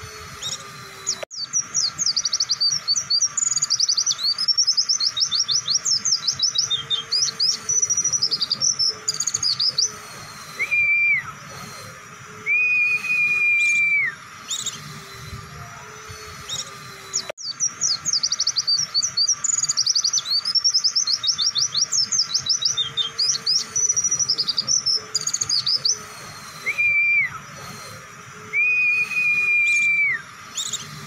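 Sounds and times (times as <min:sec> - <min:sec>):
bird song rapid high chirps: 0:00.0 - 0:31.0
long level whistles: 0:00.0 - 0:31.0.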